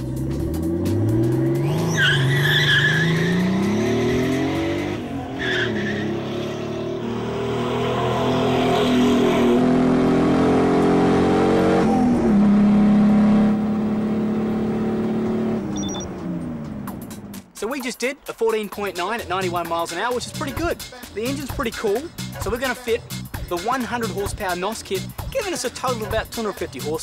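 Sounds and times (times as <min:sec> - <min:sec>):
car engine accelerating hard: 0:00.0 - 0:17.4
tyres squealing: 0:01.7 - 0:04.5.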